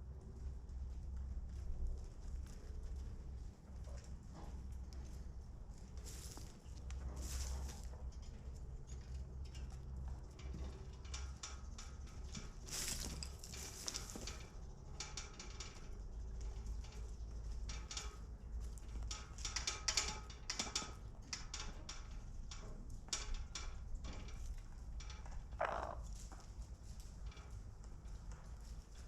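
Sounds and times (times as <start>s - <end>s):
chickens pecking and scratching: 0.2s - 15.0s.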